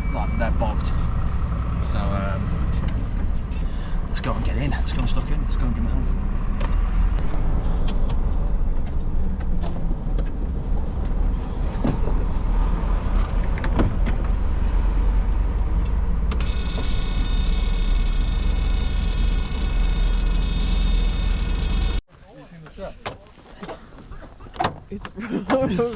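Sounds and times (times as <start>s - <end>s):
truck engine rumbling: 0.0s - 22.0s
high-pitched whine: 16.4s - 22.0s.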